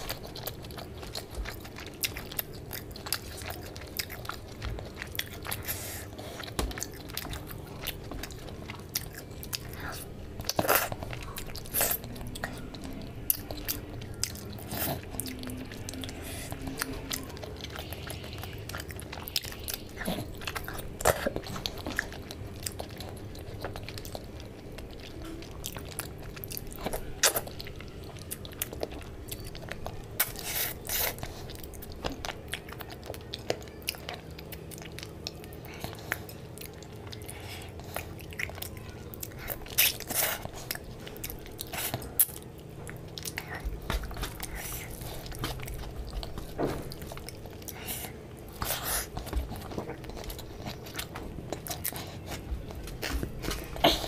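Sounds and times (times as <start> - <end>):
wet chewing and mouth smacks: 0.0 - 54.0.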